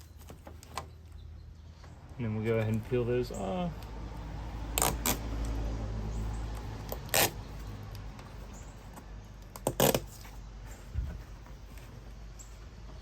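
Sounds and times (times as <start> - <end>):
adhesive strip backing ripping: 4.7 - 5.6, 6.8 - 7.4, 9.6 - 10.1.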